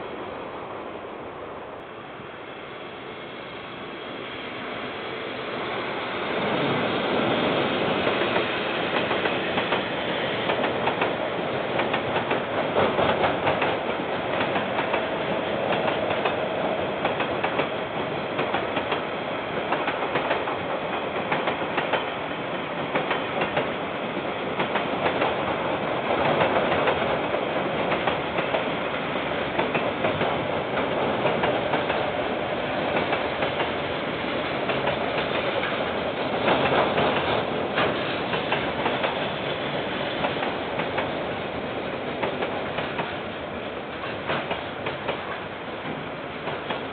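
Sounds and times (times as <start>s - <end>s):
freight train wheels rumbling: 0.0s - 46.9s
wheels clicking over rail joints: 21.2s - 22.1s.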